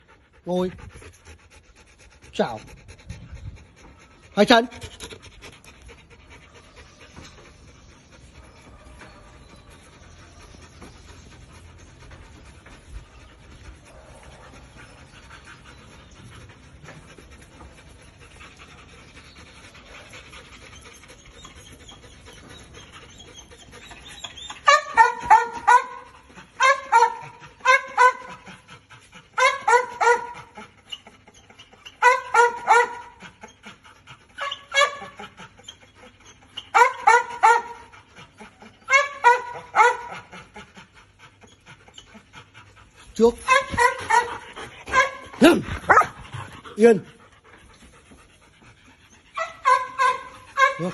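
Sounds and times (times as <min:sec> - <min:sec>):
dog panting: 0:00.0 - 0:50.9.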